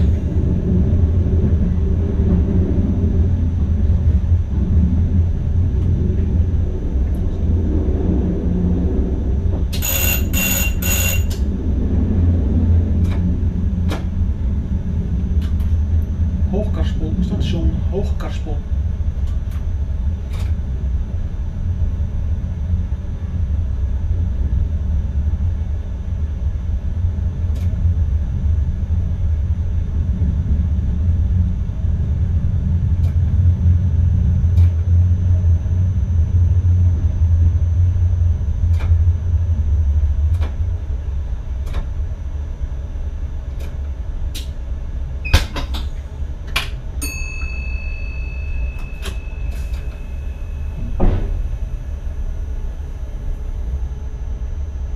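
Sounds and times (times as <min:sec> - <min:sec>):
electric train rumbling on rails: 0:00.0 - 0:54.9
steady high beep: 0:09.8 - 0:11.4, 0:47.0 - 0:52.0.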